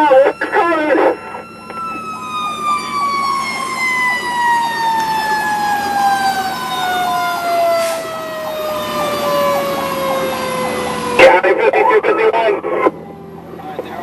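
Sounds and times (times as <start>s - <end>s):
mechanical siren winding down: 0.0s - 11.2s.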